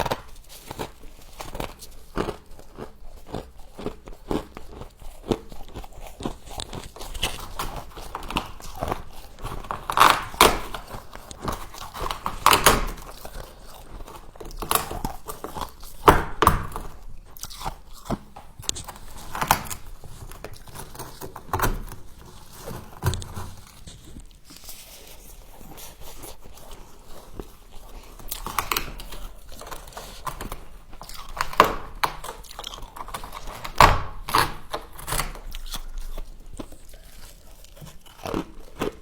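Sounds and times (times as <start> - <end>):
chewing ice crunches: 0.0 - 39.0.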